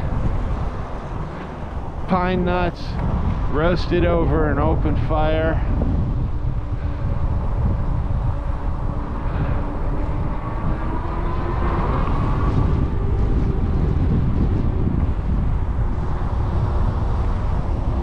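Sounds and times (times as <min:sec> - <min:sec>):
wind rumbling over microphone: 0:00.0 - 0:18.0.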